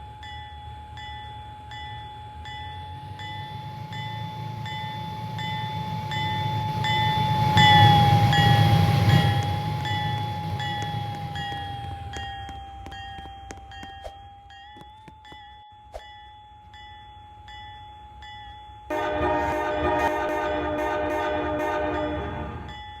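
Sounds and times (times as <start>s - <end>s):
crossing bell ringing: 0.1s - 23.0s
train rumble: 1.0s - 14.1s, 18.9s - 23.0s
train horn: 18.9s - 22.8s.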